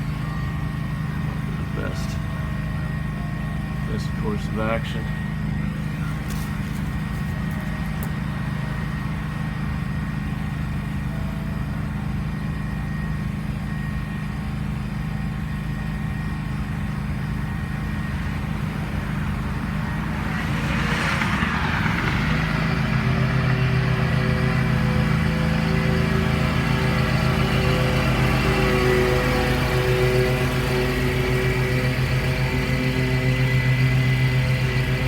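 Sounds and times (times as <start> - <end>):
lawn mower engine running: 0.0 - 35.0
rush of noise: 17.7 - 25.2.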